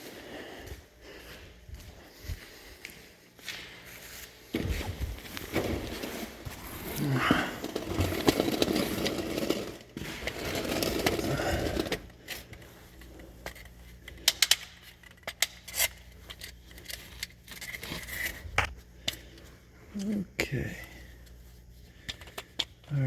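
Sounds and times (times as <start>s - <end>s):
hard parts clicking and tapping: 7.6s - 12.7s, 13.4s - 18.0s, 22.0s - 23.0s.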